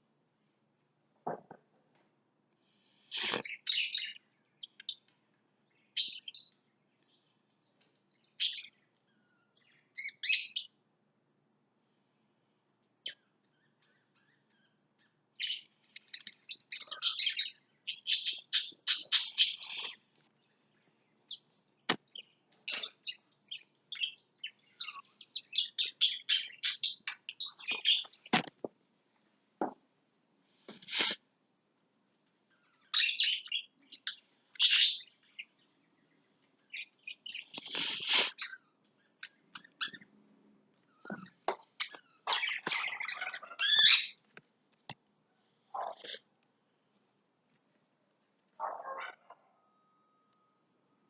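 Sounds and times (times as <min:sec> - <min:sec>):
lovebirds chirping: 0:02.9 - 0:10.8, 0:12.8 - 0:28.6, 0:32.4 - 0:44.3.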